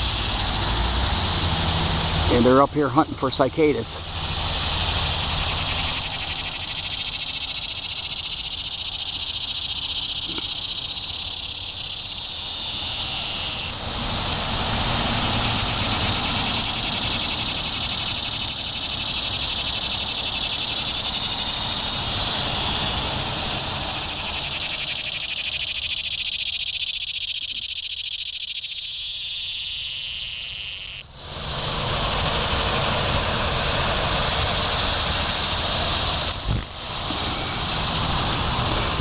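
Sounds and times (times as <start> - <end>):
cicadas buzzing: 0.0 - 39.0.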